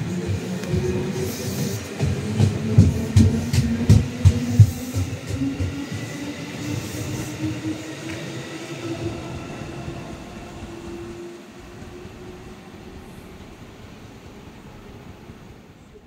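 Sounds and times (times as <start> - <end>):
train wheels knocking over rails: 0.0 - 8.6
electric train whine: 0.0 - 16.0.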